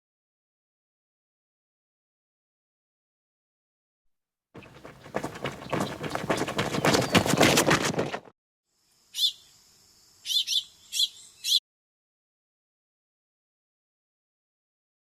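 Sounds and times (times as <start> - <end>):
wings fluttering: 4.6 - 8.3
small bird chirping: 9.0 - 11.6.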